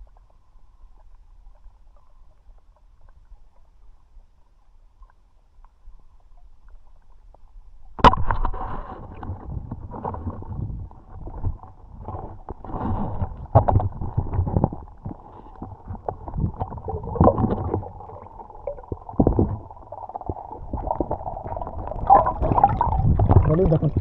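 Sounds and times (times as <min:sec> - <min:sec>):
muffled water splashing: 0:00.0 - 0:24.0.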